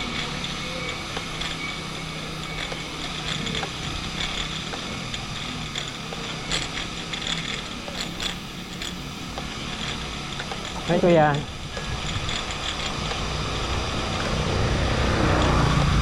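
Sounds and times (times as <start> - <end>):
bicycle freewheel ratcheting: 0.0 - 16.0
road and wind noise: 0.0 - 16.0.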